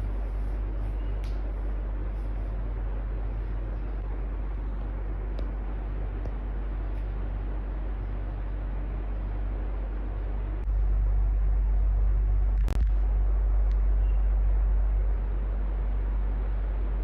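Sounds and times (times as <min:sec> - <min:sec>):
electric fan running: 0:00.0 - 0:17.0.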